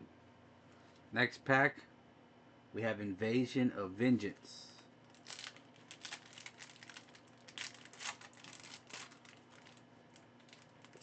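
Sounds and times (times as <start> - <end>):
wrapper crinkling and tearing: 5.0 - 11.0.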